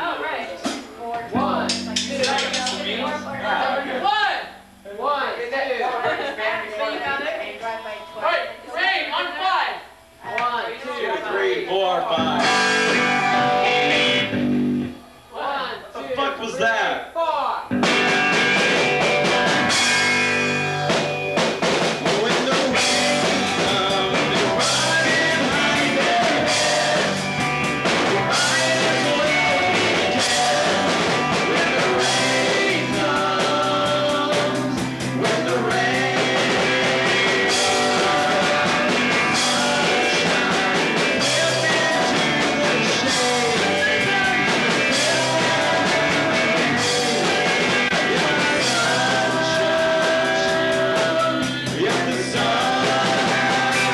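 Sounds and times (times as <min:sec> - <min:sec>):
drums: 0:00.0 - 0:07.3, 0:12.2 - 0:15.4, 0:17.6 - 0:53.9
guitar: 0:00.0 - 0:10.5, 0:11.2 - 0:15.4, 0:17.7 - 0:53.9
person singing: 0:12.2 - 0:14.4, 0:22.0 - 0:53.9.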